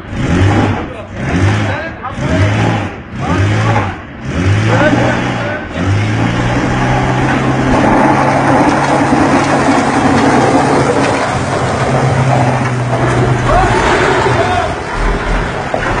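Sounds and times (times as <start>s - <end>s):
engines straining at high revs: 0.0s - 16.0s
tyres spinning on gravelly dirt: 6.1s - 16.0s.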